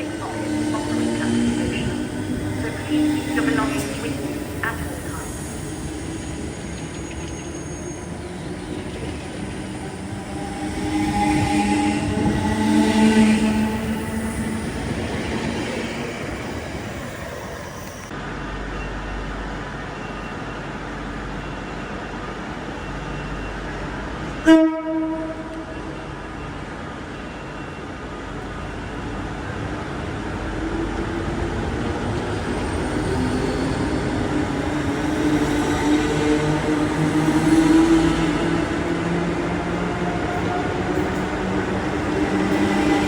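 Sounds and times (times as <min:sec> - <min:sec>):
train rumbling: 0:00.0 - 0:43.0
train horn toot: 0:10.4 - 0:14.7, 0:24.4 - 0:26.0.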